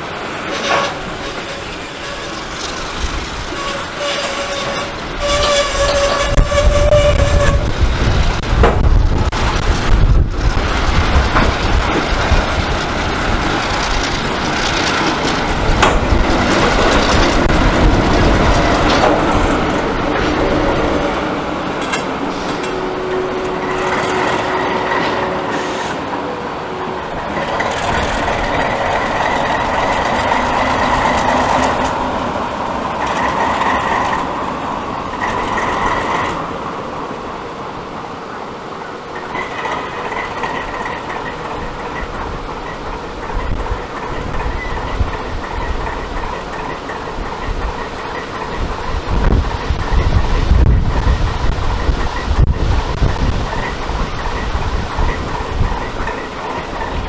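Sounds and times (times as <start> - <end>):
diesel locomotives passing: 0.0 - 57.0
train wheels clattering over joints: 0.4 - 26.2, 27.0 - 36.6, 39.0 - 57.0
high-pitched wheel squeals: 3.5 - 7.7.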